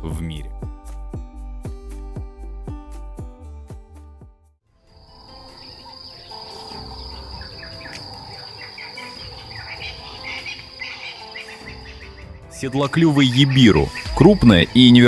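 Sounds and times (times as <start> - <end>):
insects trilling: 4.9 - 15.0
short chirping calls: 5.1 - 15.0.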